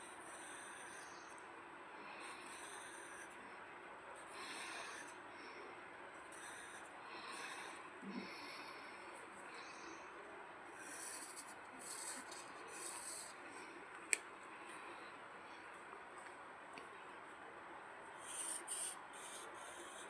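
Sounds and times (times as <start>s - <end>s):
pencil scratching on paper: 0.0s - 1.4s, 2.1s - 3.4s, 4.3s - 5.2s, 6.3s - 7.8s, 10.8s - 13.4s, 18.2s - 20.0s.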